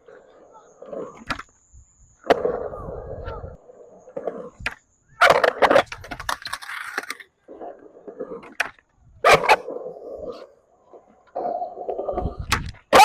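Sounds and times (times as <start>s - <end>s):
skateboard rolling on concrete: 0.0s - 13.0s
skateboard clack: 2.2s - 3.4s, 4.1s - 9.7s.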